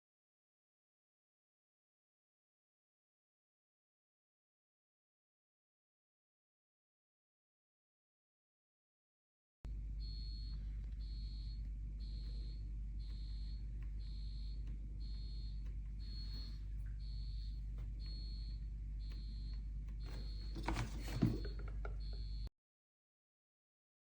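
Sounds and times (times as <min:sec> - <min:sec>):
low steady hum: 0:09.7 - 0:22.5
electronic beeper beeping: 0:10.0 - 0:22.5.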